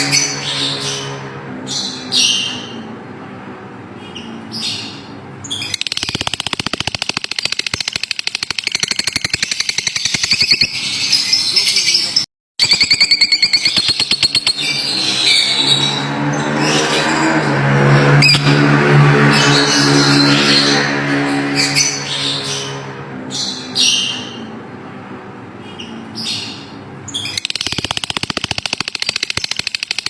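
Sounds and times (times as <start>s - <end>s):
lovebirds chirping and chattering: 25.7s - 30.0s.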